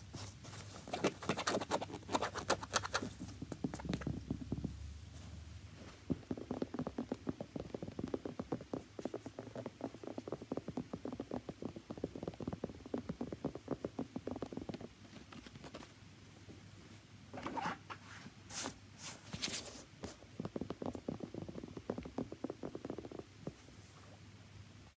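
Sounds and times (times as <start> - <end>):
rapid tapping on a shoe: 0.1 - 5.0, 5.9 - 15.8, 19.9 - 23.7.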